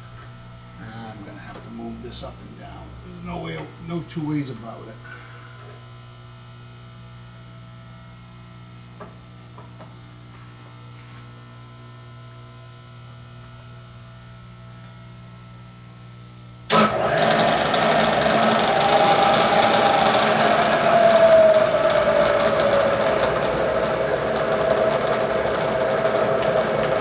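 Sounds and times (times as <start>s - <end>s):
steady electrical hum: 0.0s - 27.0s
milling machine motor whirring: 16.7s - 27.0s.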